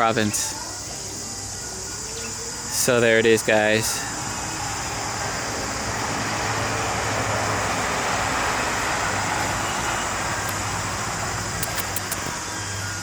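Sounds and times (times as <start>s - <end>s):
vehicle engine and tyre noise: 3.9s - 13.0s.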